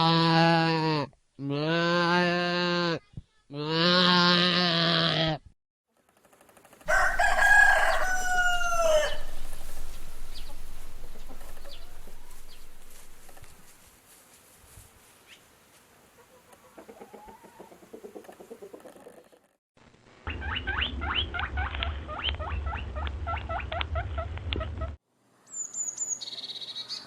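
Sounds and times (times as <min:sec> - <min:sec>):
rooster crowing: 0:06.9 - 0:13.7.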